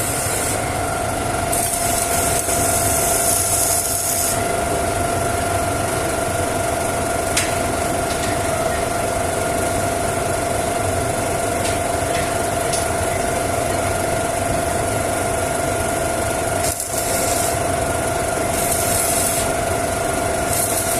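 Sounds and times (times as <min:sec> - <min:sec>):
workshop machinery humming: 0:00.0 - 0:20.9.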